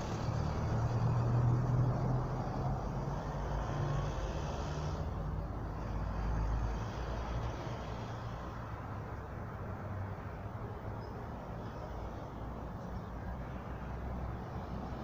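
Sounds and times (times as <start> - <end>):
motor vehicle engine rumble: 0.0 - 15.0.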